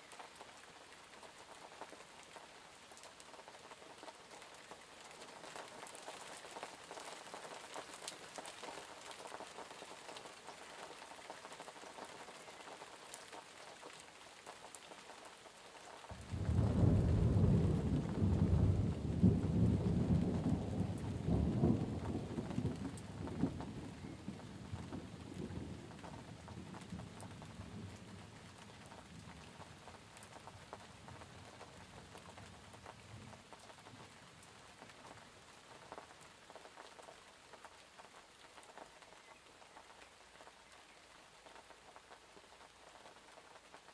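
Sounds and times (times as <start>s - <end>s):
steady rain: 0.0s - 43.9s
thunder rumbling: 16.1s - 28.4s.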